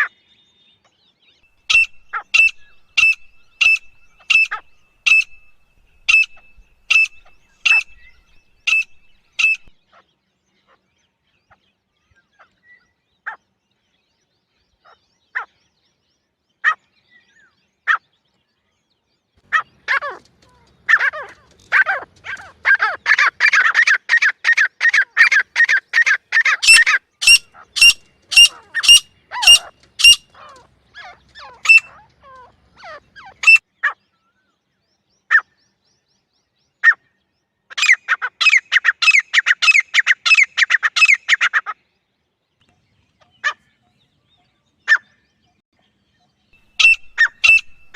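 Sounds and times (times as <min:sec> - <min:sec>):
francolin calling: 0:01.7 - 0:09.8, 0:25.2 - 0:32.0, 0:33.4 - 0:33.6, 0:46.6 - 0:47.9.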